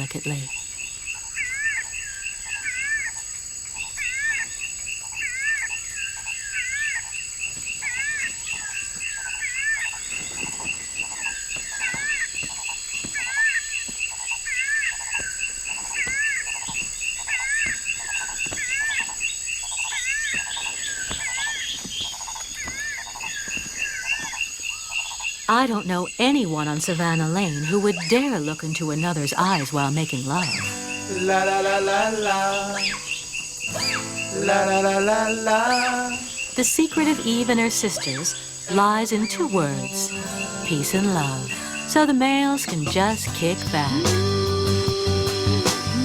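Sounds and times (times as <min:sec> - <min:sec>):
two-part chirping call: 0:00.0 - 0:46.0
high-pitched insect drone: 0:30.2 - 0:42.2.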